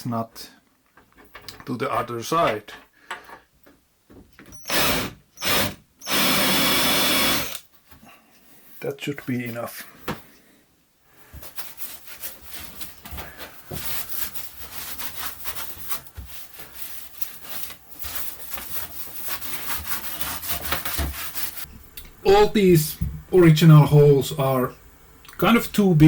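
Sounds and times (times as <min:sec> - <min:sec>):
hand tool scraping wood: 0:11.3 - 0:21.7.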